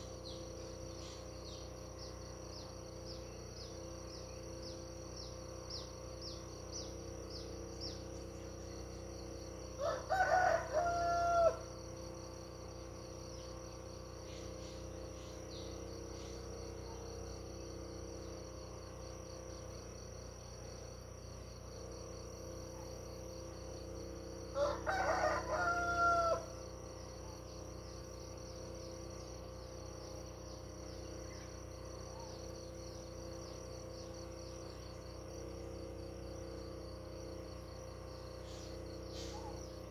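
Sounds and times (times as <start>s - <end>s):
insects trilling: 0.0s - 39.9s
rooster crowing: 9.7s - 12.0s, 24.5s - 26.8s.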